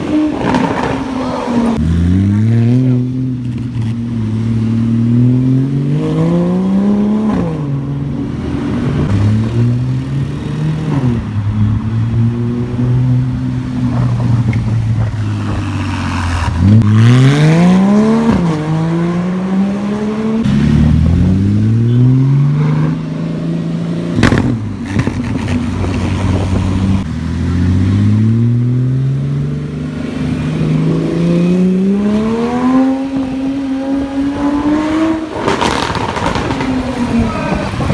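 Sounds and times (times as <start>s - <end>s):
car engine revving: 0.0s - 37.9s
sharp crack: 24.2s - 25.6s, 35.4s - 37.9s.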